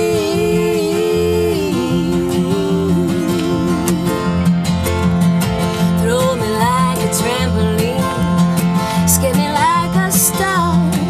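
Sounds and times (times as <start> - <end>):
person singing: 0.0 - 4.6
strummed acoustic guitar: 0.0 - 11.0.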